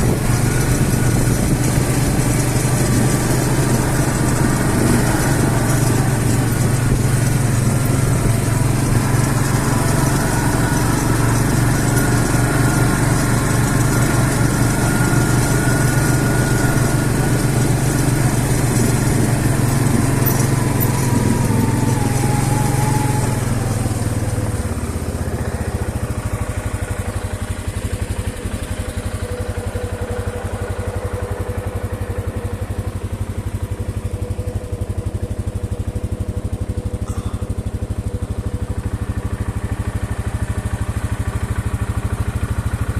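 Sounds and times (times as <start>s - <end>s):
engine running: 0.0s - 42.9s.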